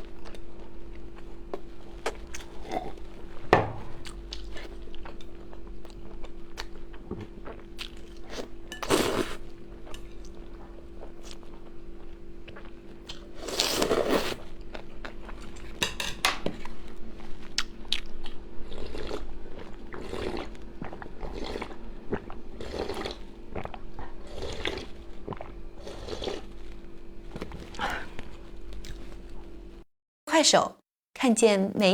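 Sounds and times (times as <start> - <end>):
person chewing crunchy food: 0.0 - 15.8, 16.4 - 29.7
steady low hum: 0.0 - 15.9.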